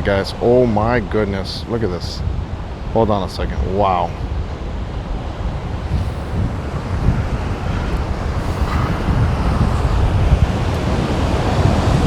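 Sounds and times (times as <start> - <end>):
gusty wind buffeting microphone: 0.0 - 12.0
surf breaking: 5.5 - 12.0.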